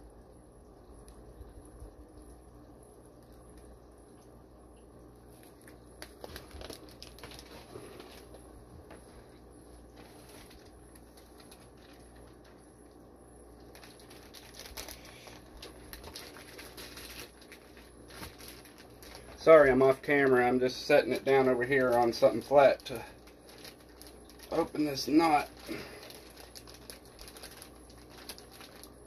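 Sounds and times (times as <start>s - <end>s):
plastic bags crinkling: 5.3s - 8.5s, 9.2s - 29.0s.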